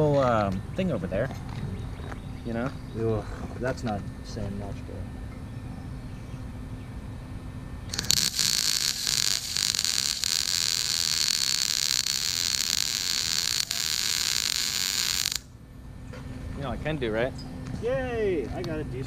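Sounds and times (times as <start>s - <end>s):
welding arc crackling hiss: 7.9s - 15.5s.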